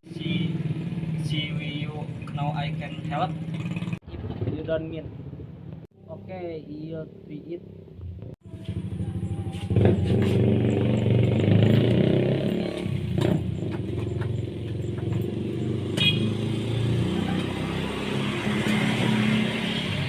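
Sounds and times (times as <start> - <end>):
motorcycle engine running: 8.0 - 18.0.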